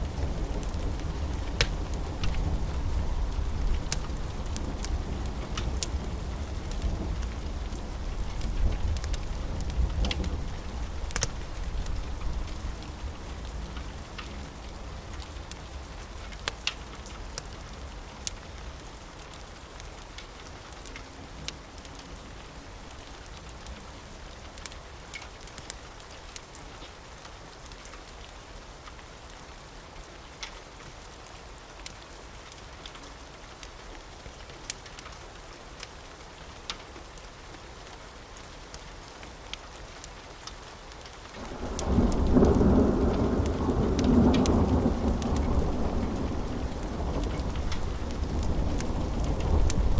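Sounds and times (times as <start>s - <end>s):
wood fire crackling: 0.0s - 29.5s, 30.2s - 49.9s
steady rain: 0.0s - 49.9s
thunder rumble: 41.4s - 49.9s.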